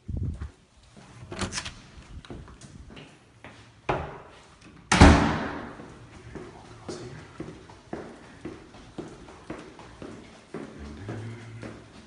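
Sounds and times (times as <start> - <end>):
light footsteps: 2.0 - 4.8, 5.6 - 12.0
door slamming with a bang: 4.9 - 5.8.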